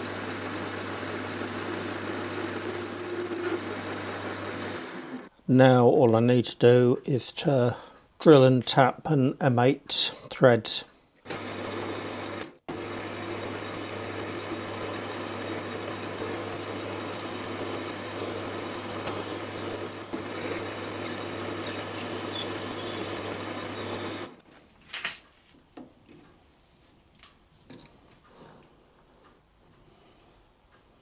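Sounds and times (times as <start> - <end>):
drill bit squealing: 0.0 - 3.6, 12.8 - 24.3
lathe motor hum: 0.0 - 5.3, 11.4 - 24.4.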